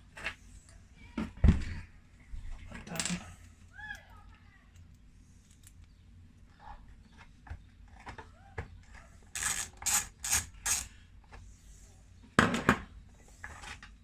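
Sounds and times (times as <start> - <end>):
metal screws and tools clinking: 9.3 - 10.9.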